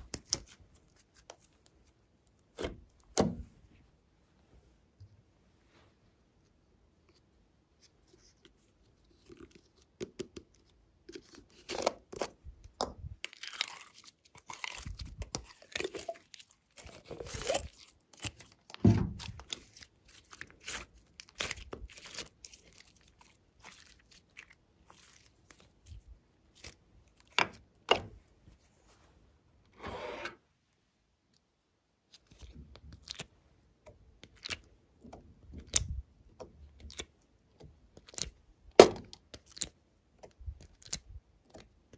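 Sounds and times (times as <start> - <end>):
slime crackling and squelching: 0.0 - 3.2, 7.9 - 28.0, 32.0 - 41.9.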